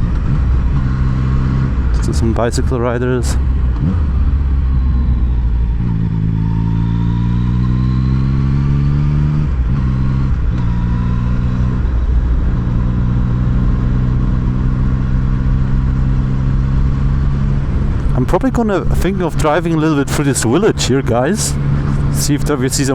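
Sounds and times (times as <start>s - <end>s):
motorcycle engine: 0.0s - 22.9s
wind rumble on microphone: 9.2s - 22.9s.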